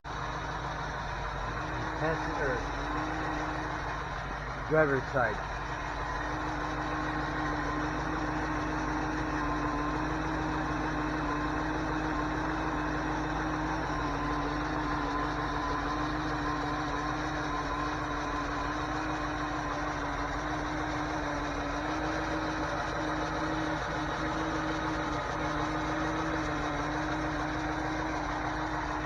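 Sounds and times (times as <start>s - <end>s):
car engine idling: 0.0s - 29.0s
engine ticking: 0.0s - 29.0s.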